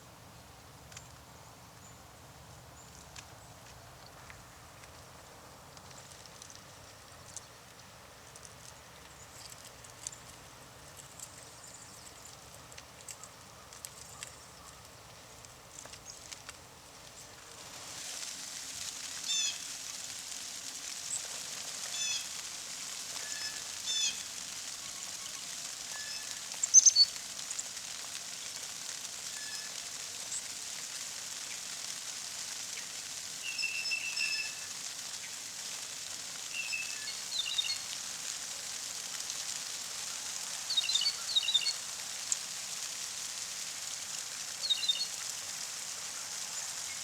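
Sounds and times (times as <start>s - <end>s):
steady background hiss: 0.0s - 47.0s
faint ticks: 2.8s - 17.3s
bird chips: 17.2s - 38.3s, 40.4s - 42.9s, 44.6s - 45.2s
small songbirds calling: 23.3s - 24.3s, 24.9s - 27.7s, 32.8s - 34.7s, 36.4s - 38.0s, 40.7s - 42.4s, 44.6s - 45.2s.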